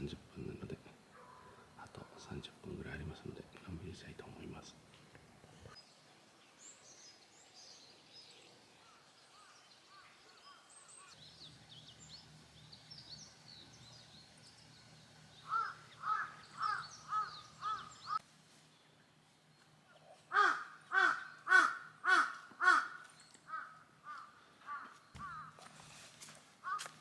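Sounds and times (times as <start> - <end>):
crow cawing: 15.4 - 18.2, 20.3 - 25.6, 26.6 - 27.0.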